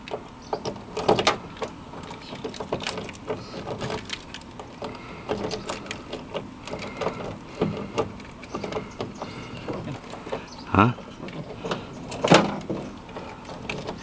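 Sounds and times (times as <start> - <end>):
metal door latch clicking: 11.2 - 14.0.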